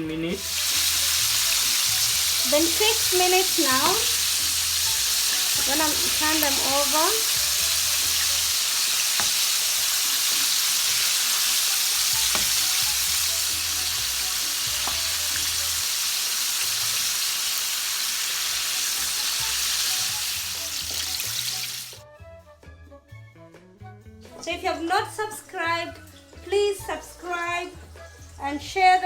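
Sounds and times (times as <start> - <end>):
chicken deep-frying sizzle: 0.0 - 22.0.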